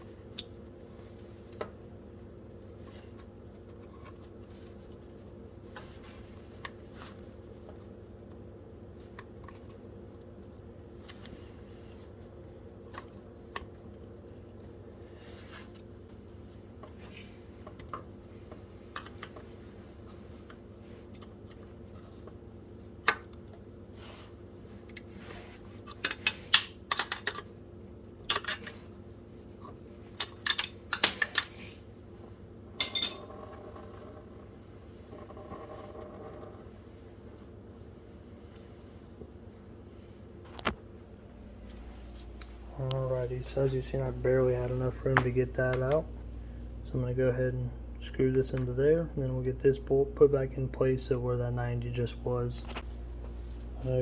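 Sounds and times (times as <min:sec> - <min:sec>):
steady low hum: 0:00.0 - 0:54.0
metal tools clicking and clinking: 0:32.8 - 0:33.4.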